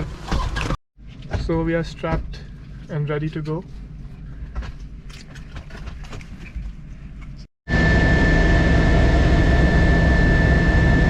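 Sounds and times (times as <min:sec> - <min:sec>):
helicopter turbine and rotor: 0:07.7 - 0:11.0.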